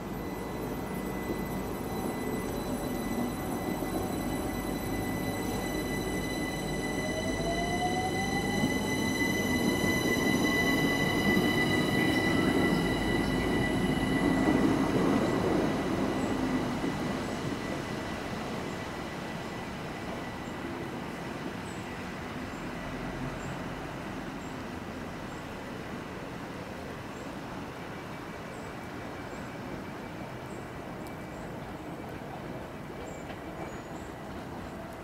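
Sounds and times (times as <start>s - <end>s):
steady high-pitched tone: 0.0s - 23.0s
train traction motor whine: 0.0s - 24.4s
train rumble: 0.0s - 35.0s.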